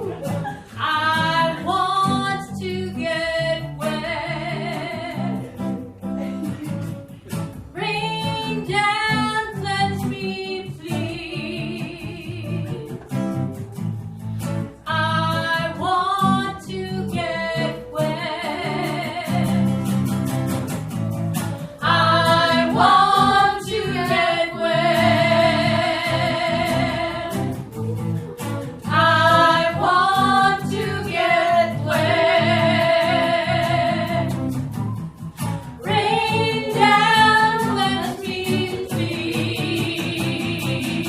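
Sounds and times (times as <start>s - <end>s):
strummed guitar: 0.0s - 41.0s
person singing with vibrato: 21.6s - 34.6s, 35.8s - 41.0s.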